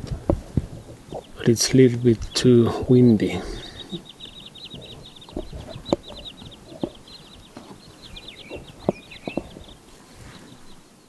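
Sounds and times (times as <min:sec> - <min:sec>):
bird trilling: 0:00.6 - 0:10.8
dull knocks: 0:04.8 - 0:07.8, 0:08.4 - 0:09.7.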